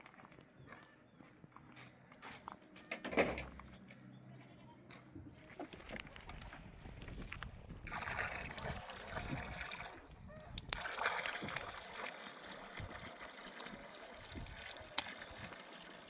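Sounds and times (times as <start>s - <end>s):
water trickling and splashing: 7.7s - 16.0s.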